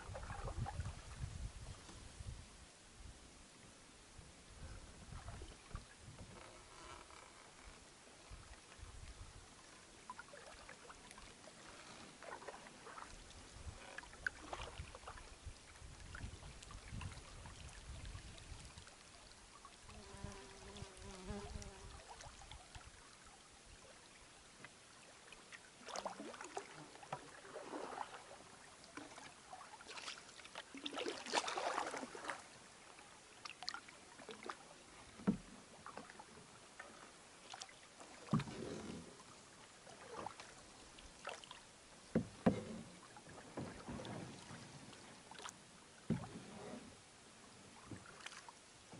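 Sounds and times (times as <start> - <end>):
paddle splashing water: 0.0 - 2.1, 4.6 - 48.9
wind rumble on microphone: 0.0 - 3.2, 4.1 - 6.6, 13.2 - 19.0.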